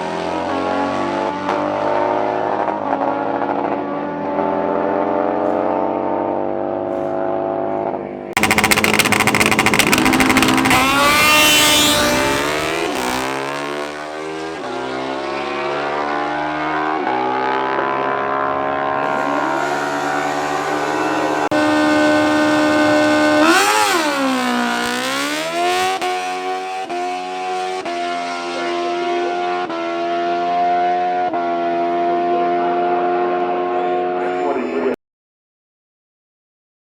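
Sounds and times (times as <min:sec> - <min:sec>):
motorcycle engines revving: 0:08.4 - 0:34.2.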